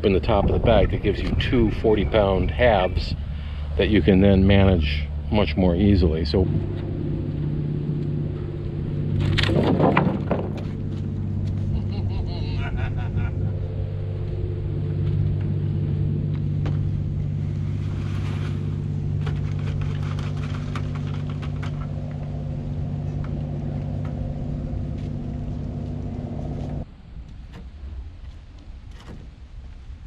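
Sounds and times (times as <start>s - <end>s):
cement mixer motor droning: 0.6s - 26.9s.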